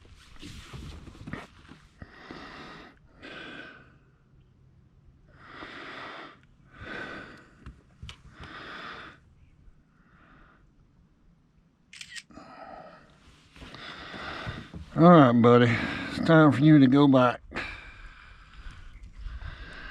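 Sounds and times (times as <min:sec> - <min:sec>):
person breathing heavily: 0:02.0 - 0:04.1, 0:05.3 - 0:09.3, 0:12.3 - 0:16.2, 0:17.5 - 0:19.9.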